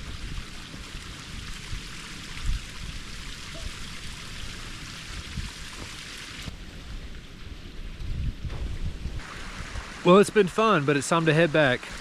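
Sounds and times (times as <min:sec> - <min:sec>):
wind buffeting microphone: 0:00.0 - 0:10.0
steady hiss: 0:09.1 - 0:12.0.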